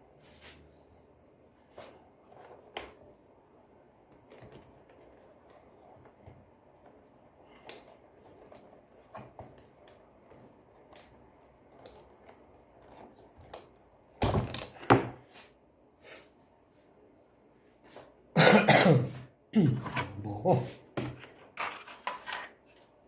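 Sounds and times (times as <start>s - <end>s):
knocking and scraping: 19.7s - 23.0s.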